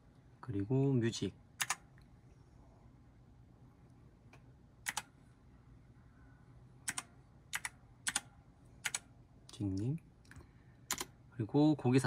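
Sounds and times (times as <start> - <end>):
faint low hum: 0.0 - 12.0
computer keyboard key clicks: 4.8 - 5.0, 6.9 - 8.2, 8.8 - 9.0, 10.9 - 11.1.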